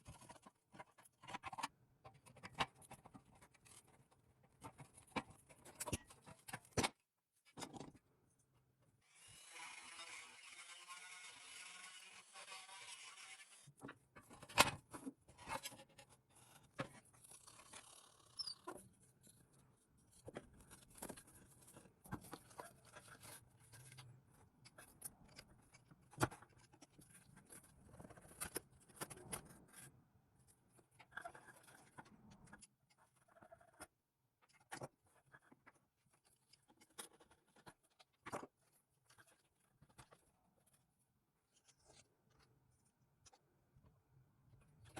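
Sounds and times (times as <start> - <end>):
toy parts clicking and scraping: 11.4 - 33.9.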